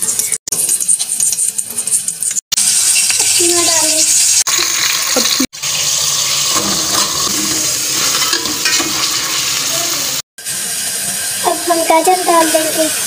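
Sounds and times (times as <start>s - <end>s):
chicken sizzling in hot oil: 0.0s - 13.0s
spoon stirring in a pot: 6.4s - 9.5s.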